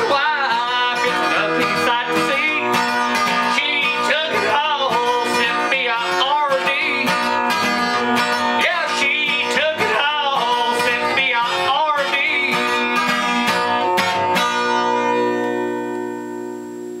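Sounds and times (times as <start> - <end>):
person singing: 0.0 - 13.0
acoustic guitar strumming: 0.0 - 17.0.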